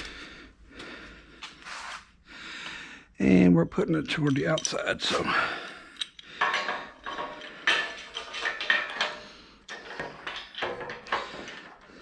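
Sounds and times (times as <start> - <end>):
metallic clinks and knocks: 4.1 - 12.0.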